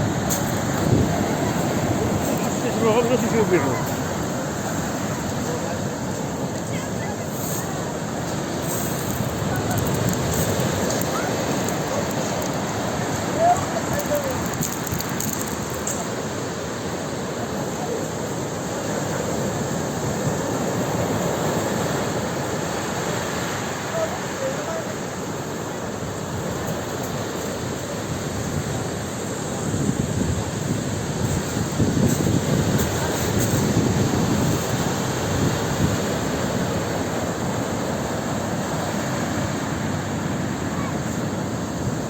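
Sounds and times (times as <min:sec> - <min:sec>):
waves breaking: 0:00.0 - 0:42.0.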